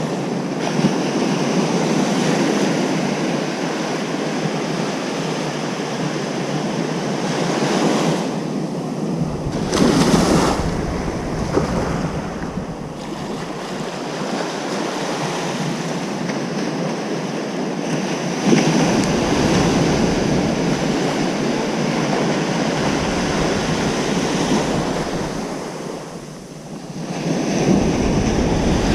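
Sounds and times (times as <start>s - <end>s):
ocean waves breaking: 0.0s - 28.9s
wind rumbling on microphone: 0.0s - 28.9s.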